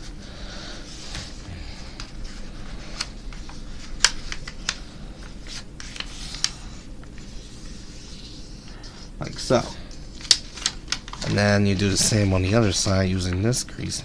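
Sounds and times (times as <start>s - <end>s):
paper rustling and crinkling: 2.0s - 8.7s, 9.3s - 13.5s.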